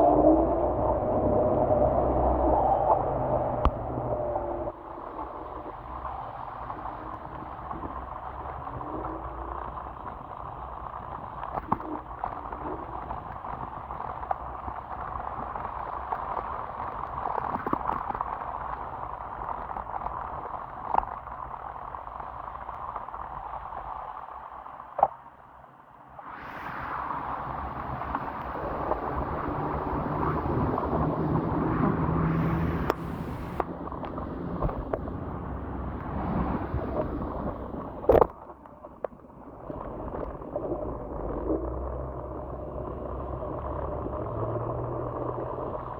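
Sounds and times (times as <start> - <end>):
low steady hum: 0.0 - 15.6, 26.2 - 45.9
low rumble: 0.0 - 15.9, 26.1 - 45.9
wind buffeting microphone: 0.0 - 20.7, 26.2 - 38.4
tyres hissing through water: 26.2 - 33.6.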